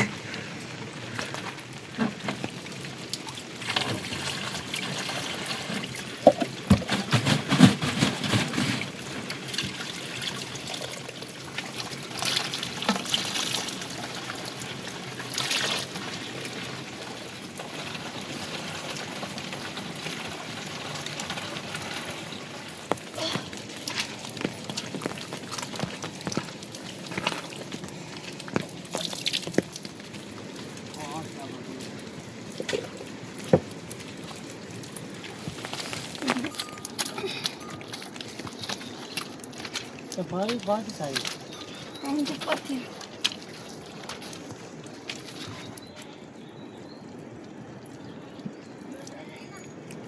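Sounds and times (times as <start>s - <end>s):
rainwater trickling and pouring: 0.0s - 50.0s
knocks and clatter: 6.2s - 9.0s.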